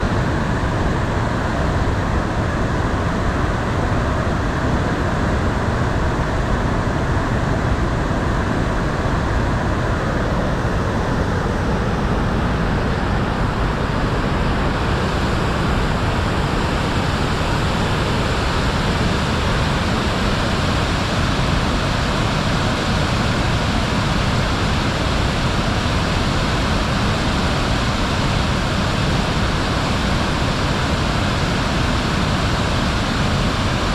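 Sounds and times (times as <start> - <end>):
waterfall rushing: 9.5 - 33.9.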